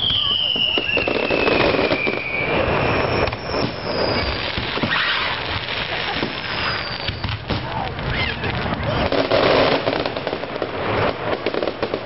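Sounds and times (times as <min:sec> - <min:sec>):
faint falling whistle: 0:00.0 - 0:05.4
echoing fireworks booms: 0:00.0 - 0:12.0
fireworks crackling and popping: 0:00.0 - 0:12.0.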